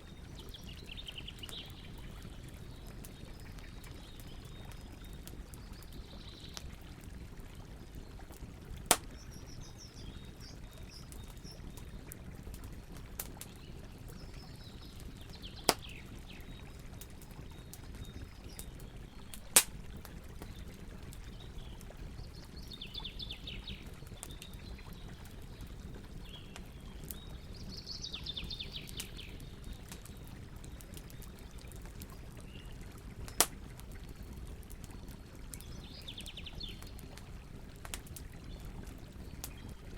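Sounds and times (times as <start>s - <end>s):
campfire hissing and crackling: 0.0s - 39.9s
fire popping loudly: 8.5s - 22.5s, 33.3s - 35.8s.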